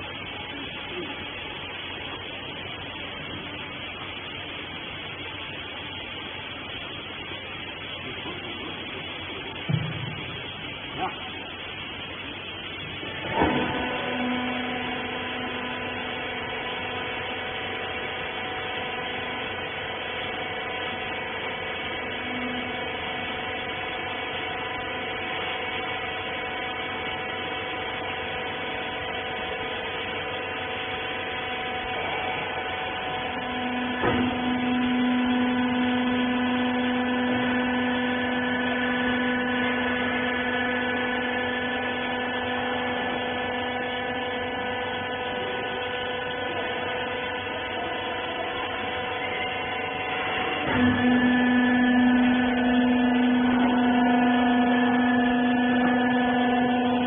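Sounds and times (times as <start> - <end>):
baler motor and pump humming: 0.0 - 57.0.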